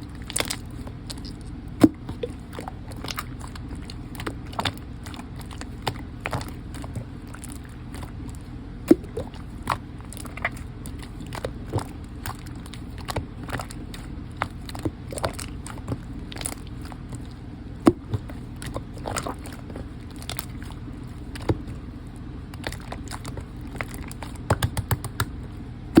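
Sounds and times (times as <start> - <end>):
slime squished by hand: 0.0 - 26.0
steady low hum: 0.0 - 26.0.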